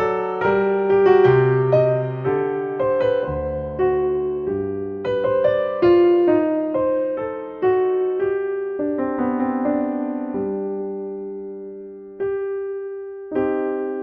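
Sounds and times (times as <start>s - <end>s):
slow gentle piano music: 0.0s - 14.0s.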